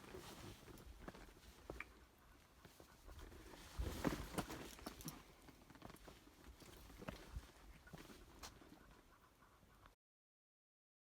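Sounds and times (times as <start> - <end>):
footsteps on a trail: 0.0 - 9.1.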